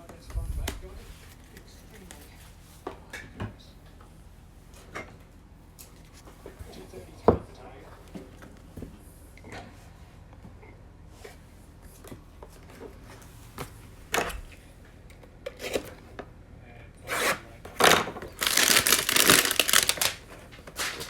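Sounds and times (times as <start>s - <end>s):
wrapping crinkling and tearing: 17.8s - 21.0s.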